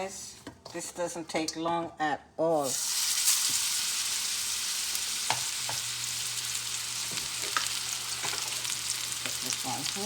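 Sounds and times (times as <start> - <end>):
chicken sizzling in a pan: 2.6 - 10.0.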